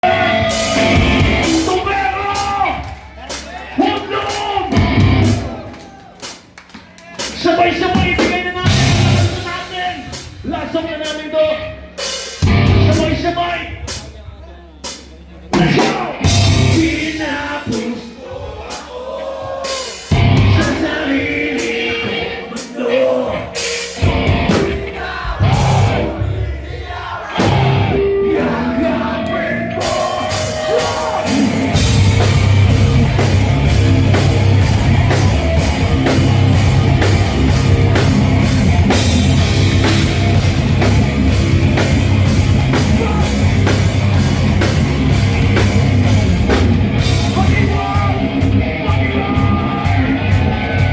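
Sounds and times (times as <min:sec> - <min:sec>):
live rock band playing: 0:00.0 - 0:14.1, 0:14.8 - 0:17.8, 0:19.7 - 0:22.6, 0:23.5 - 0:26.2, 0:27.4 - 0:50.9
drum hits: 0:04.6 - 0:05.6, 0:12.3 - 0:13.0, 0:19.3 - 0:20.9, 0:23.8 - 0:28.0, 0:29.8 - 0:48.5.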